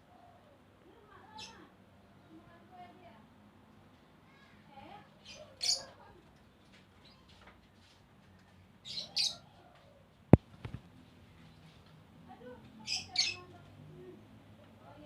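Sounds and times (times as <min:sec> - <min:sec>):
light tap: 0:10.4 - 0:10.8.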